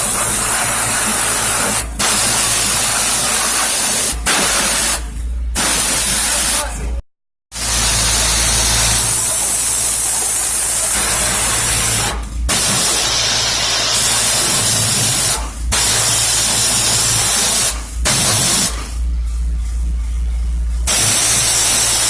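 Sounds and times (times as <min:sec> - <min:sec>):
steady low hum: 0:00.0 - 0:07.0, 0:07.6 - 0:22.0
spray hissing: 0:20.9 - 0:22.0.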